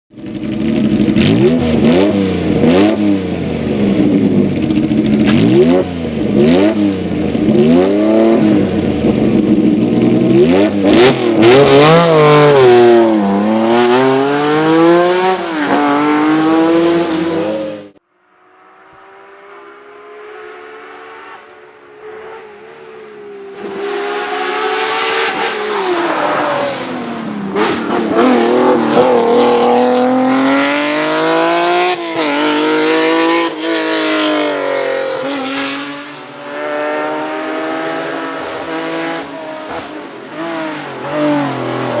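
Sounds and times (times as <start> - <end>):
car engine revving hard: 0.5 - 18.0, 23.5 - 42.0.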